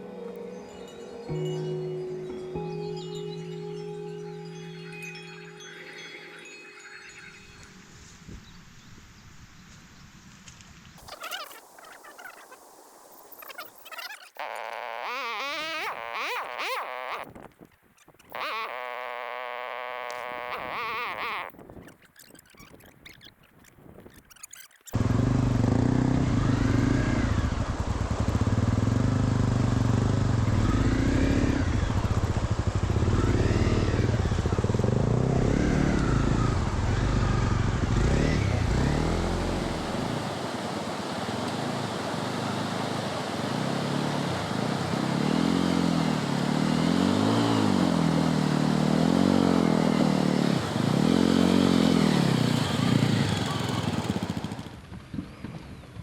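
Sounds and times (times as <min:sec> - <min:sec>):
motorcycle engine revving: 0:18.3 - 0:21.5, 0:25.0 - 0:55.0.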